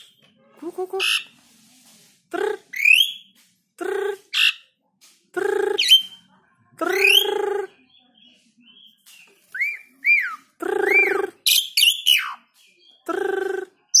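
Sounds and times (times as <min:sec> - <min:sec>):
high squeaky bird chirps: 0:06.9 - 0:07.7, 0:08.8 - 0:13.0.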